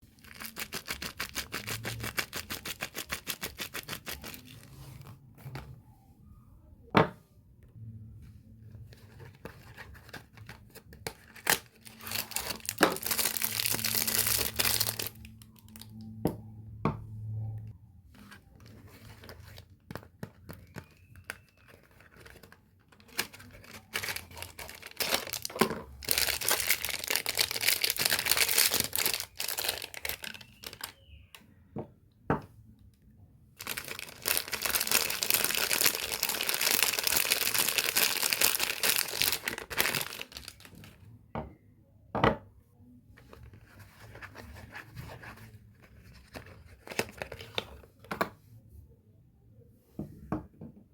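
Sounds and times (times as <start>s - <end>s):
packaging tearing and crinkling: 0.2s - 4.6s, 9.7s - 15.9s, 20.6s - 31.0s, 33.6s - 41.0s.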